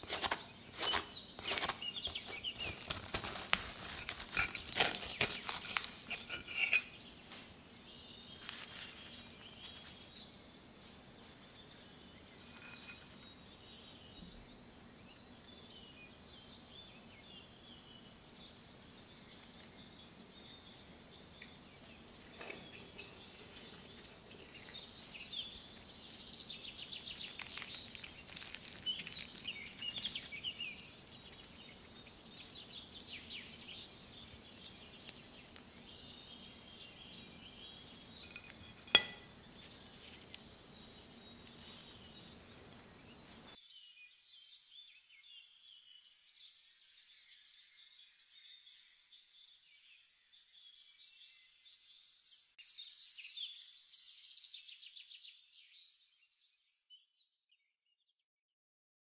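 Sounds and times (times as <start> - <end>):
birds chirping: 0.0 - 43.6
sharp clink: 38.2 - 39.3.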